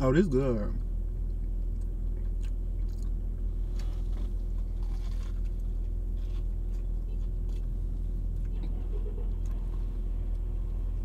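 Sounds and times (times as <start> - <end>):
low hum inside car: 0.0 - 11.0
crunchy chewing: 1.2 - 8.7.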